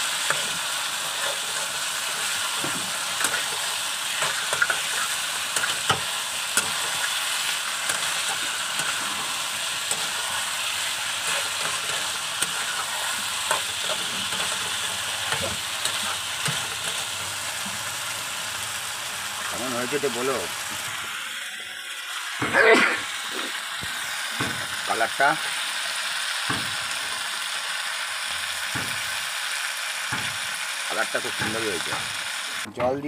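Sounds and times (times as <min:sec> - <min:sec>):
food sizzling in hot oil: 0:00.0 - 0:32.7
spatula knocking and scraping pan: 0:00.3 - 0:03.6, 0:04.2 - 0:07.0, 0:11.1 - 0:17.0.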